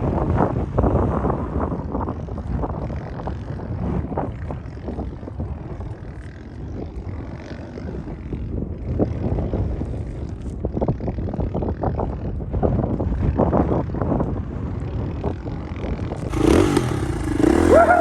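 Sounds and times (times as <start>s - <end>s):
wind buffeting microphone: 0.0s - 18.0s
dirt bike engine running: 16.2s - 18.0s.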